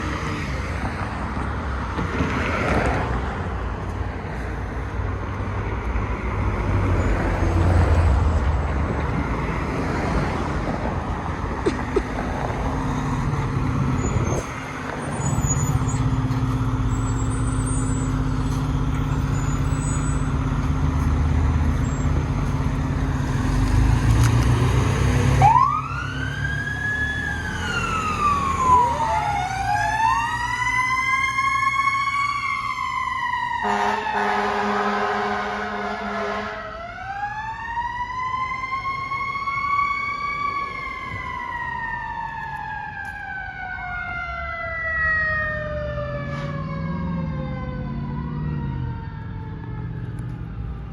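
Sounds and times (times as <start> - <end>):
fire engine rumbling: 0.0 - 50.9
siren wailing: 12.8 - 23.6, 25.2 - 50.9.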